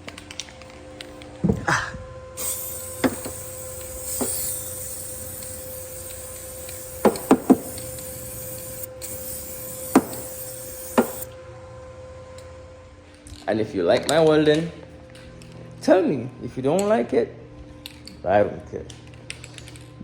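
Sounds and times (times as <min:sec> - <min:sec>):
welding arc hissing: 0:02.4 - 0:11.3.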